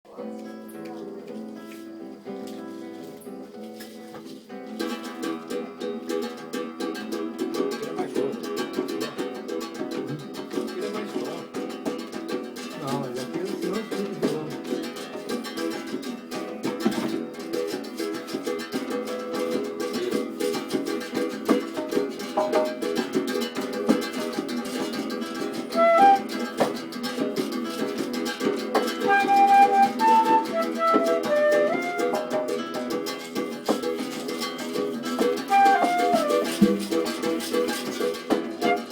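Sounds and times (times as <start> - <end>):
acoustic guitar strumming: 0.1 - 38.9
melody of short held notes: 29.1 - 32.6.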